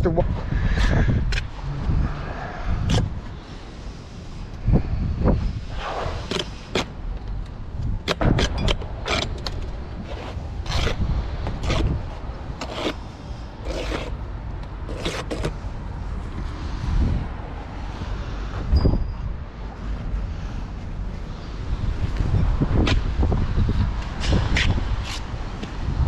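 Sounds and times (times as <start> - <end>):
wind rumble on microphone: 0.0 - 26.0
trowel scraping mortar: 10.0 - 12.0, 12.6 - 13.0, 13.6 - 14.2, 14.9 - 15.6.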